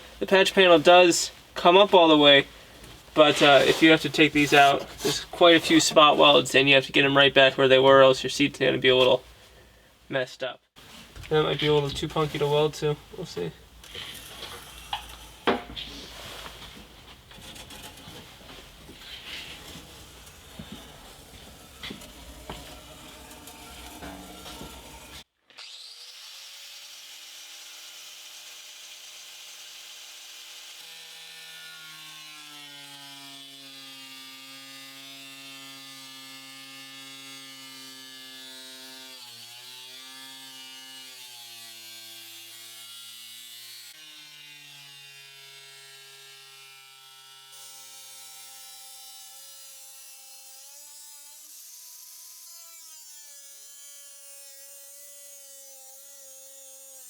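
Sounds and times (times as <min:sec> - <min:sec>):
cut-off tool cutting sheet metal: 0:13.8 - 0:16.1, 0:17.3 - 0:26.3.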